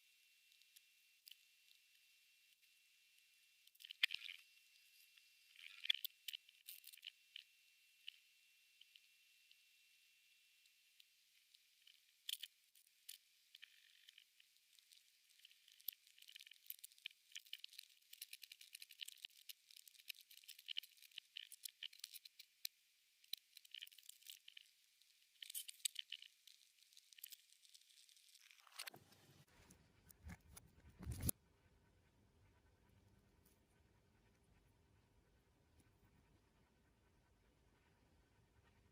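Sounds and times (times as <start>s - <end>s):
insect chewing crunching: 13.5s - 24.7s, 25.3s - 28.9s.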